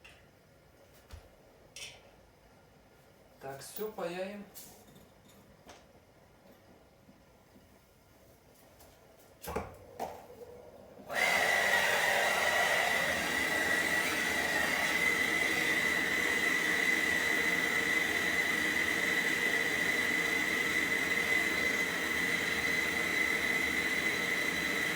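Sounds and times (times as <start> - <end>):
torch flame hissing: 11.1 - 20.4.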